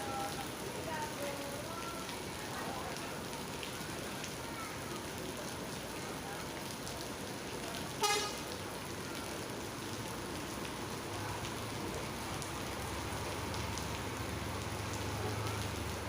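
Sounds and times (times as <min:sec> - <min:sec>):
heavy rain: 0:00.0 - 0:16.0
vehicle horn toot: 0:08.0 - 0:08.4.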